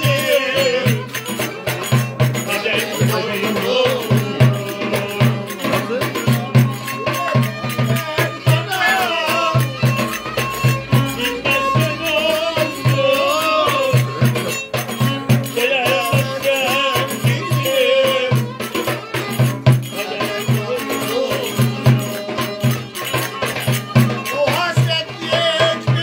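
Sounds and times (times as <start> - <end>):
ornamented folk melody: 0.0 - 26.0.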